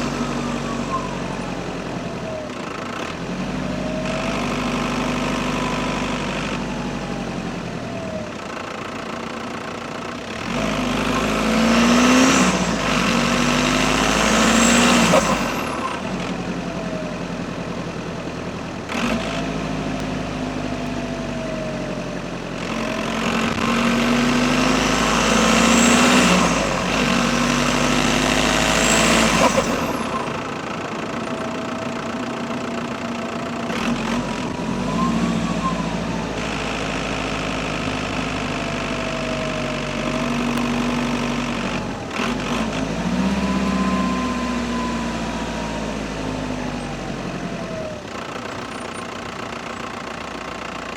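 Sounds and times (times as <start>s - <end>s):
turbocharger whistle: 0.0s - 1.4s, 33.8s - 36.4s
diesel engine revving: 0.0s - 50.9s.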